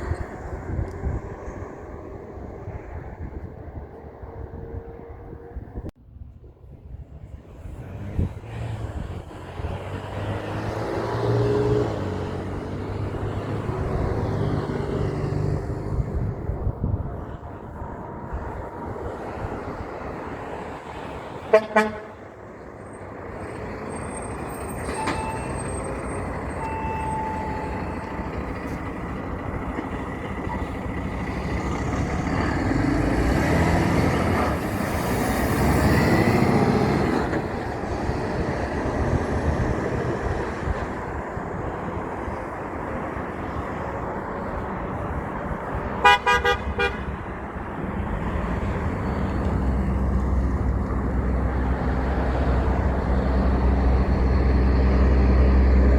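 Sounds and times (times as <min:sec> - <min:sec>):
truck tyre noise passing: 0:00.0 - 0:05.9, 0:06.5 - 0:55.9
truck horn blast: 0:21.5 - 0:22.3, 0:26.6 - 0:28.3, 0:46.0 - 0:47.2
truck engine running: 0:23.1 - 0:35.9.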